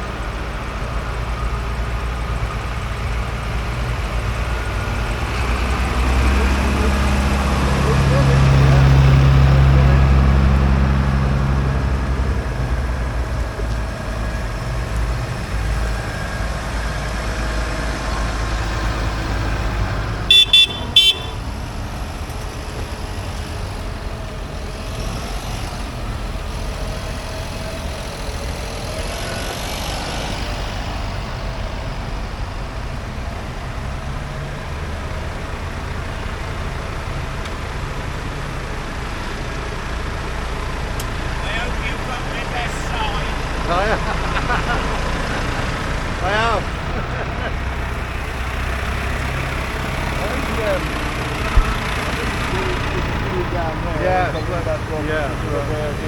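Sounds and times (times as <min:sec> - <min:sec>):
tractor engines running: 0:00.0 - 0:56.0
vehicle horn toots: 0:20.2 - 0:21.9.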